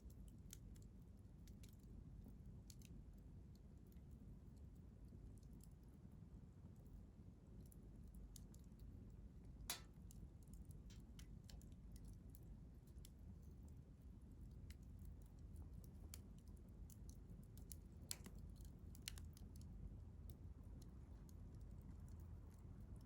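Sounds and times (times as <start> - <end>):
low steady rumble: 3.8 - 23.0
campfire crackling: 9.6 - 12.2, 14.7 - 22.1
fire pops and snaps: 9.6 - 12.2, 14.6 - 21.4.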